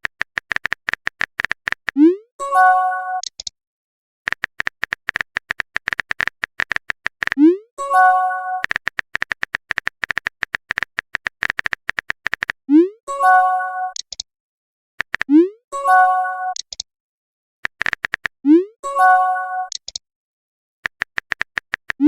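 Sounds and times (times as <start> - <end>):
rapid clicking blips: 0.0 - 2.1, 3.2 - 3.5, 4.3 - 7.6, 8.6 - 12.6, 13.9 - 14.3, 15.0 - 15.4, 16.5 - 16.9, 17.6 - 18.4, 19.7 - 20.0, 20.8 - 22.0.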